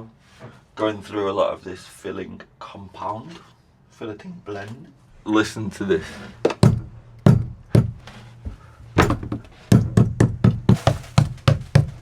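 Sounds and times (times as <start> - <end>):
knocking on wooden boat panel: 6.5 - 12.0.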